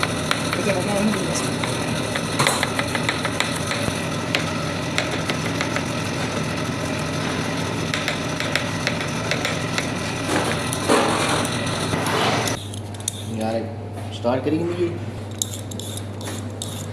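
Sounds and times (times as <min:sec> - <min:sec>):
low motor hum: 0:00.0 - 0:13.3.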